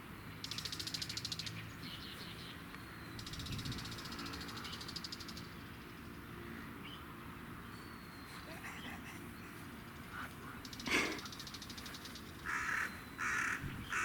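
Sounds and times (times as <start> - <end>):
birds chirping and whistling: 7.7 - 14.0
bird rattling trill: 10.6 - 14.0.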